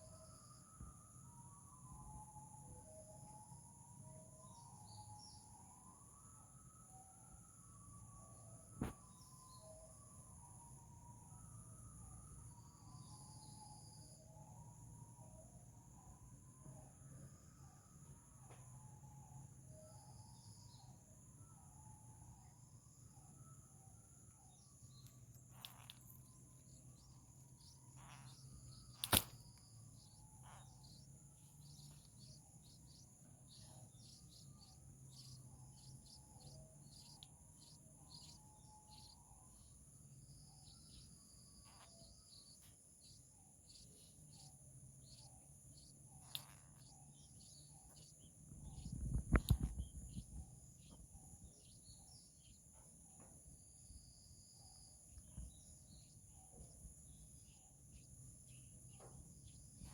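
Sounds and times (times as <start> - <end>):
insect hum: 0.0 - 59.9
small birds chirping: 24.4 - 59.9
sharp click: 29.0 - 29.6.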